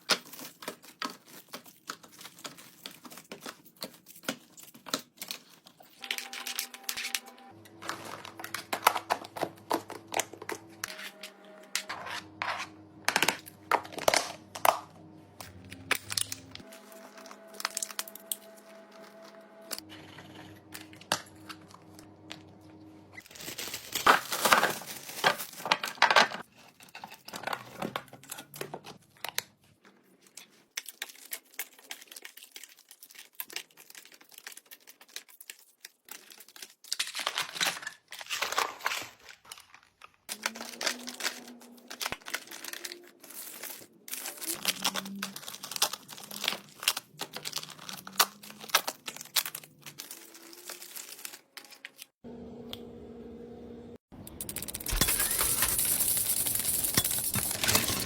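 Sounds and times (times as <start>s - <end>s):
material crackling and crunching: 0.0s - 7.0s, 23.2s - 28.3s, 29.0s - 52.2s, 54.4s - 58.0s.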